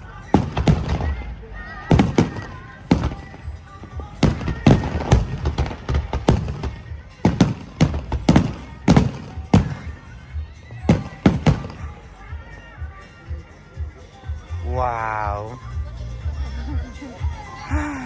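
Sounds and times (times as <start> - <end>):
fireworks exploding: 0.3 - 10.2, 10.8 - 12.0.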